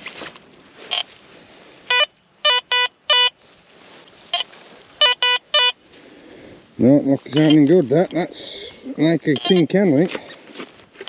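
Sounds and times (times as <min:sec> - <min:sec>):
metal detector buzzy beeps: 0:00.9 - 0:01.1, 0:01.9 - 0:03.4, 0:04.3 - 0:05.8, 0:07.3 - 0:08.2, 0:09.2 - 0:09.8.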